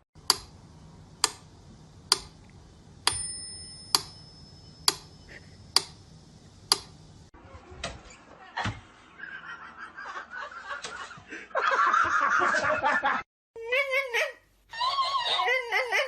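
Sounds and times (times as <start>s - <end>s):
faint high steady tone: 3.0s - 5.8s.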